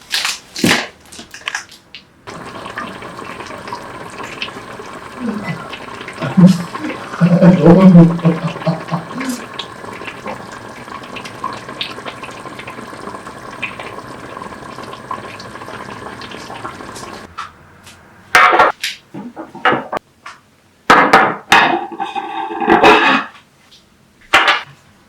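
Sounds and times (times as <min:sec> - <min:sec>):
water running: 0:02.3 - 0:17.3
dishes clattering: 0:21.0 - 0:23.3.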